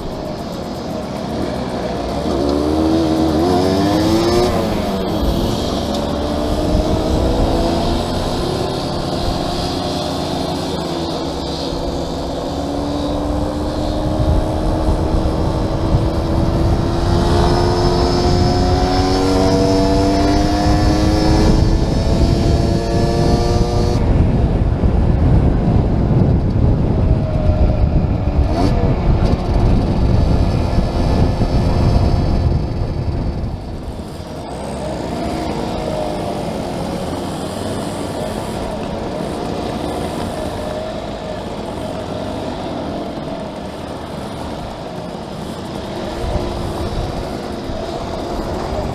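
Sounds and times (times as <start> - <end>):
motorcycle engine speeding up: 0.0 - 48.9
wind buffeting microphone: 0.0 - 48.9.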